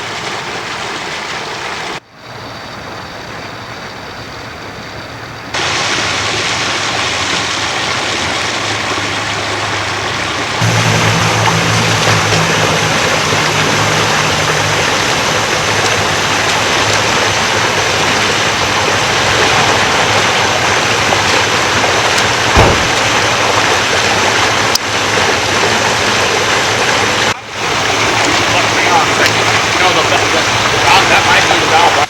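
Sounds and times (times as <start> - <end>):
water gushing: 5.6 - 32.0
low engine hum: 8.8 - 32.0
thump: 22.6 - 23.0.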